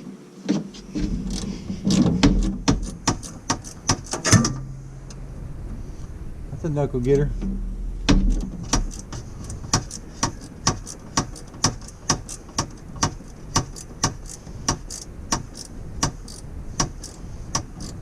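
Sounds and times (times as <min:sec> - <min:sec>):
ratchet wrench clicking: 0:08.8 - 0:18.0.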